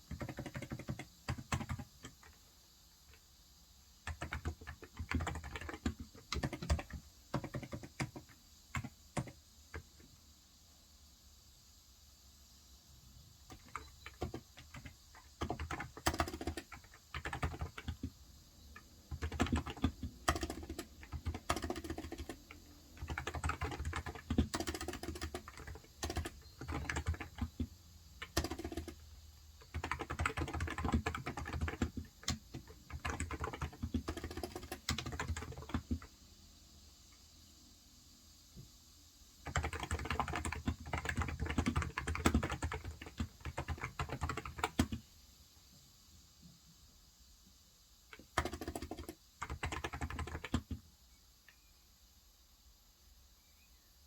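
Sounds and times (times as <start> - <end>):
typing on a keyboard: 0.0 - 2.4, 4.0 - 10.1, 13.4 - 18.2, 18.8 - 36.1, 39.4 - 45.0, 48.1 - 50.8.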